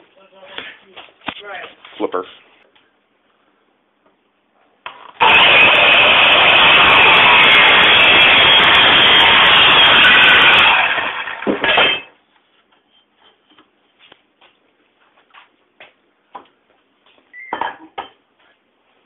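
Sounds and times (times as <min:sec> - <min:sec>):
power saw cutting metal rod: 0:05.2 - 0:12.1.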